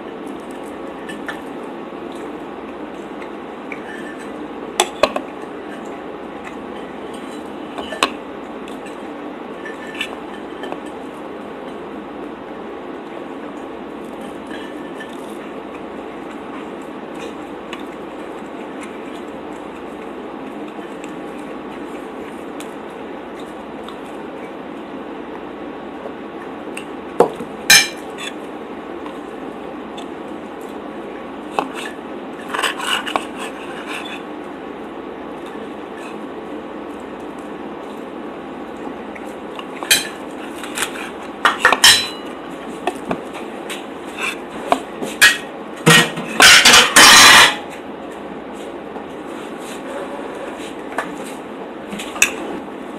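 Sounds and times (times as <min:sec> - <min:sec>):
cutlery clinking on a plate: 0:41.5 - 0:42.3, 0:45.2 - 0:47.6.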